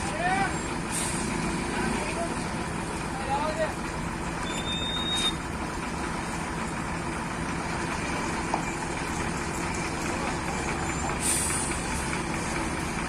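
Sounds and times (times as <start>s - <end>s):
diesel engine running: 0.0s - 13.0s
brief hiss: 11.2s - 11.8s.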